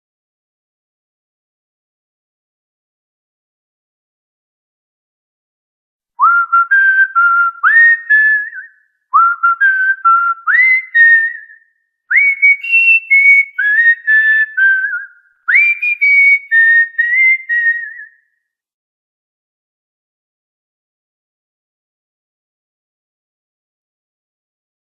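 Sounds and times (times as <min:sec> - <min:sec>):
cockatiel whistling a tune: 0:06.2 - 0:18.2.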